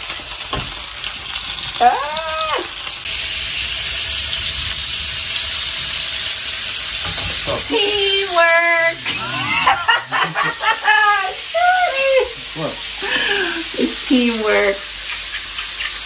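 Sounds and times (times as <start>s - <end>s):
pork chops sizzling in a pan: 0.0s - 16.0s
high vocal call: 7.7s - 11.7s.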